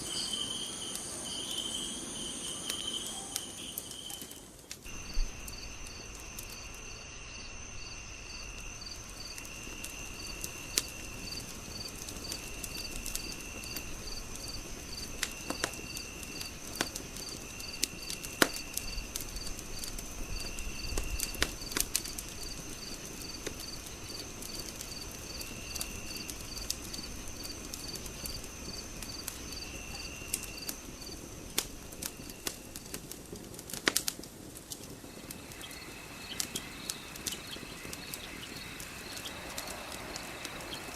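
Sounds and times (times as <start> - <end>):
insects high trill: 0.0 - 13.4
low insect trill: 0.0 - 33.0, 35.0 - 40.9
insect chirps: 0.0 - 33.2, 34.9 - 40.9
wood fire crackling and popping: 0.1 - 40.9.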